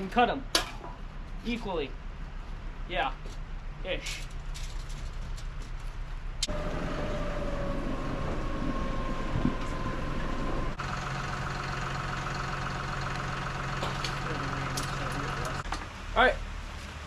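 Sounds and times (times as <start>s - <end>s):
different steady low hum: 0.0s - 10.8s
motor humming: 6.5s - 15.6s.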